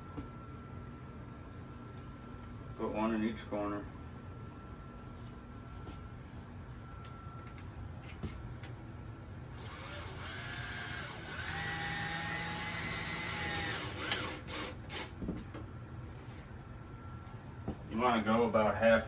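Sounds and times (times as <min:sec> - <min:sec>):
power drill driving screw into wood: 0:09.5 - 0:15.2.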